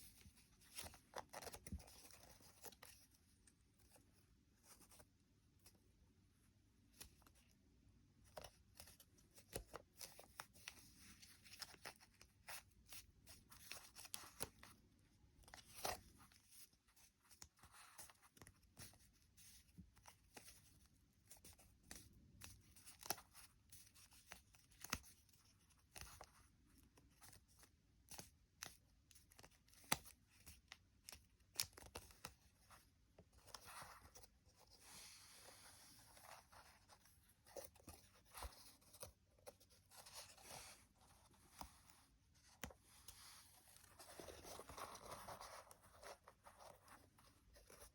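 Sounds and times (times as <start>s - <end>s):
paper being folded and creased: 27.1s - 47.9s.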